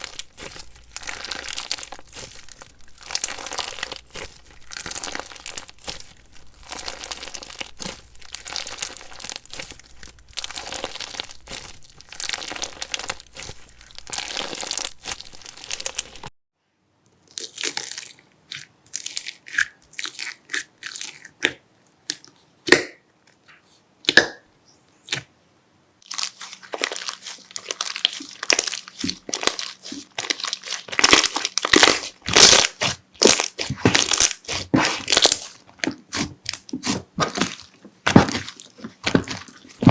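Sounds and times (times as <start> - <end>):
slime crackling: 0.0 - 16.3, 26.0 - 39.9.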